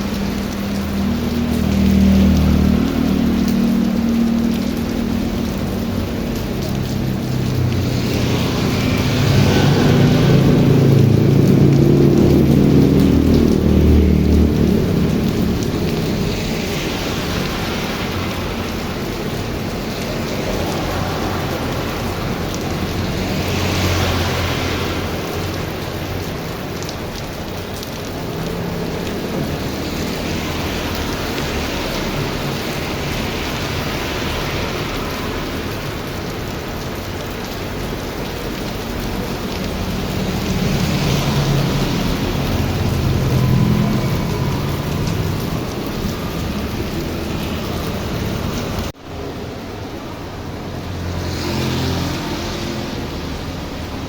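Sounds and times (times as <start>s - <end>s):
heavy rain falling: 0.0s - 54.0s
strong wind: 14.4s - 29.8s, 30.6s - 51.4s.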